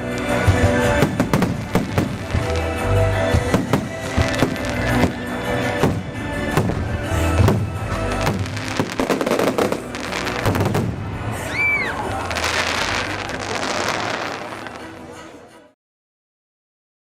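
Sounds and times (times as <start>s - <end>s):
firework crackling: 0.0s - 15.3s
firework whistle: 8.4s - 14.7s.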